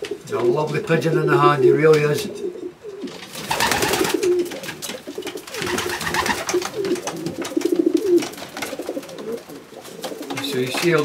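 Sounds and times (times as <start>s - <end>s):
pigeons cooing: 0.0s - 11.0s
rustling: 2.8s - 11.0s.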